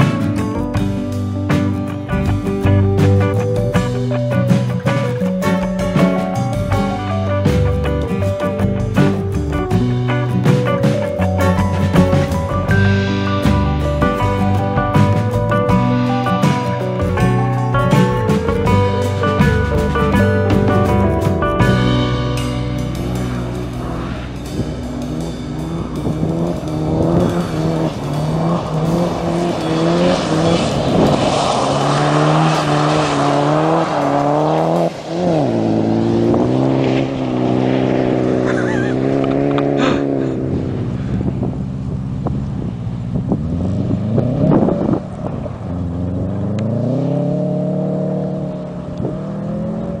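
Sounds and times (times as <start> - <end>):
car engine revving hard: 21.7 - 50.0.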